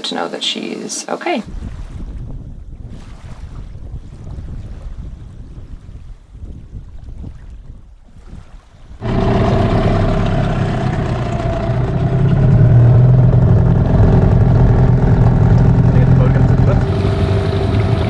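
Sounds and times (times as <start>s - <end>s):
faint wind: 0.0s - 18.0s
water noise: 8.6s - 18.0s
motorboat engine droning: 9.0s - 18.0s.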